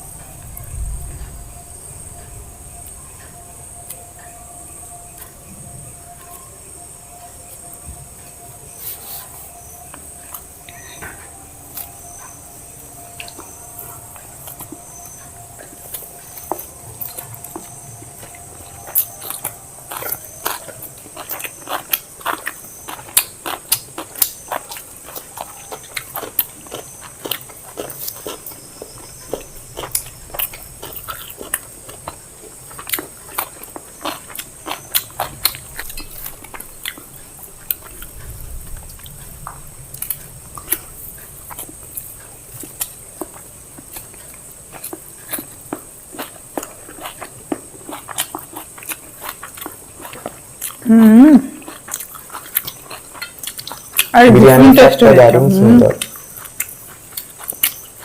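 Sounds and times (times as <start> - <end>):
wet chewing: 7.4 - 58.0
food crunches: 13.2 - 50.9, 51.5 - 54.1, 56.0 - 58.0.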